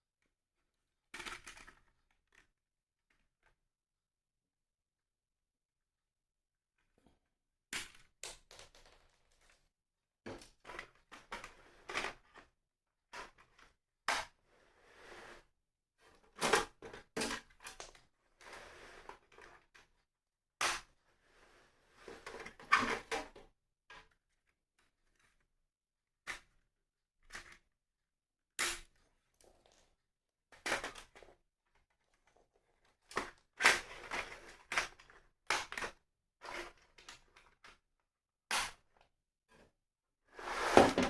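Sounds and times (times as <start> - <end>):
rustling and scraping: 40.4 - 41.0.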